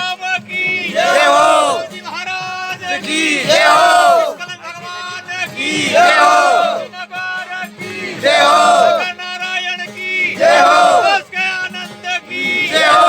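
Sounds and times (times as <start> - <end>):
group of voices chanting: 0.7 - 2.0, 2.8 - 4.4, 5.6 - 6.9, 7.9 - 9.1, 10.3 - 11.3, 12.3 - 13.0.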